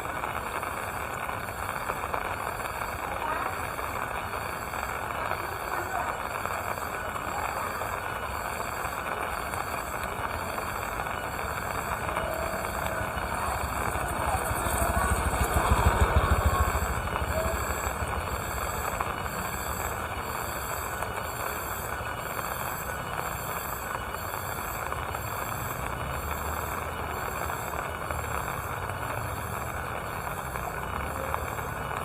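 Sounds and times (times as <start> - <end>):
steady rain falling: 0.0 - 32.0
low engine-like rumble: 11.0 - 20.2.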